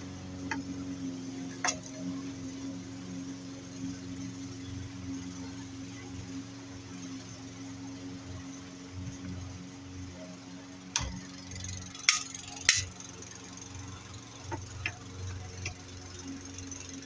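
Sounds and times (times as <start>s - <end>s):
metal clicks and knocks: 12.0s - 13.0s.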